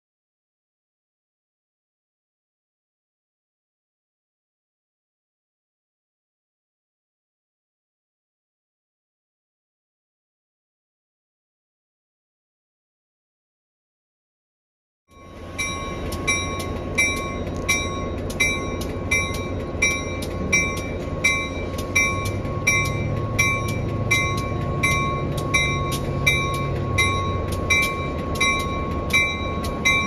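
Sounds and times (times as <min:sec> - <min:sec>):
train rumble: 0:15.1 - 0:30.0
bell ringing: 0:15.2 - 0:30.0.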